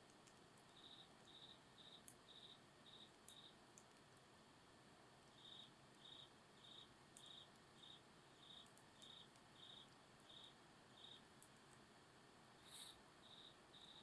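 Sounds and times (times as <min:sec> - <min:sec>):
crickets chirping: 0:00.6 - 0:03.6, 0:05.3 - 0:11.4, 0:12.6 - 0:14.0.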